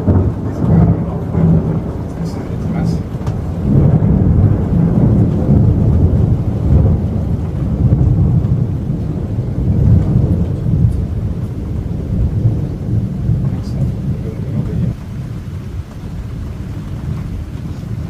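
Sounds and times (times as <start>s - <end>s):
rolling rumble of thunder: 0.0s - 18.0s.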